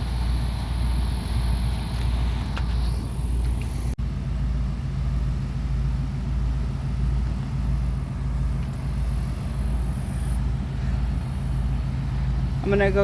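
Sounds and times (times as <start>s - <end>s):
engine running with low hum: 0.0s - 13.0s.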